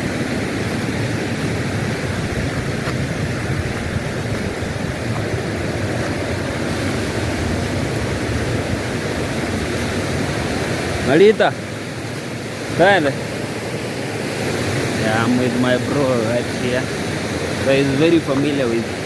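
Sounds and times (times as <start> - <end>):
wind on microphone: 0.0 - 11.1
stream water rushing: 0.0 - 19.0.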